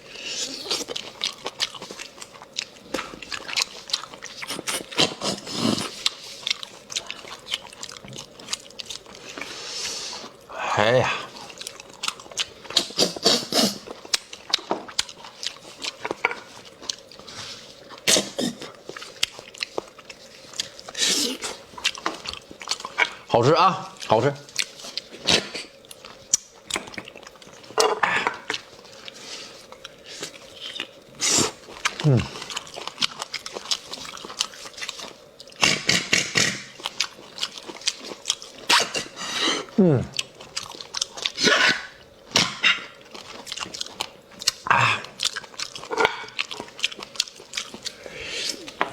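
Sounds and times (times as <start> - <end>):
person slurping and sucking: 0.0 - 0.9, 4.3 - 6.4, 12.7 - 14.0, 20.8 - 21.6, 27.8 - 32.7, 35.6 - 36.9, 38.6 - 40.1, 41.3 - 43.0, 47.8 - 48.9.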